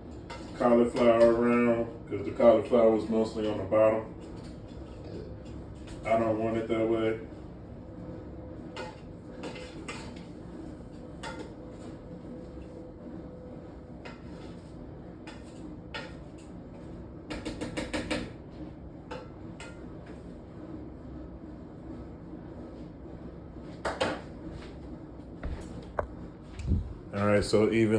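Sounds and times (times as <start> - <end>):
steady low hum: 0.0 - 27.9
utensil knocking against a pot: 17.3 - 18.3.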